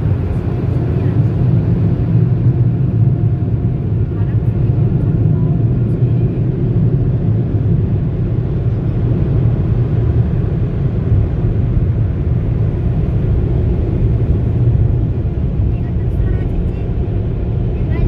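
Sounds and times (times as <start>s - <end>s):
car wash machinery rumbling: 0.0s - 18.0s.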